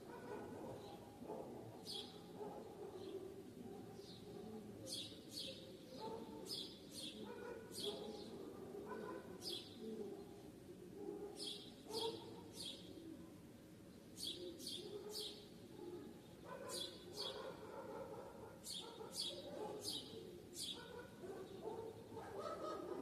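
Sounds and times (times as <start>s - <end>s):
small birds chirping: 14.0s - 22.4s.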